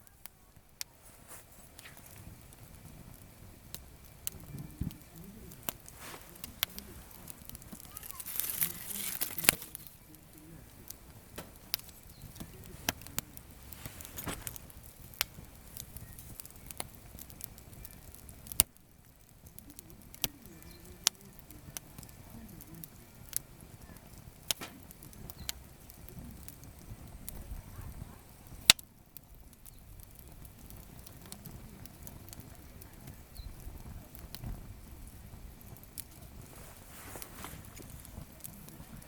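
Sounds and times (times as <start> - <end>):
campfire crackling: 0.0 - 39.0
loud wood snaps: 5.6 - 10.0, 24.4 - 25.6.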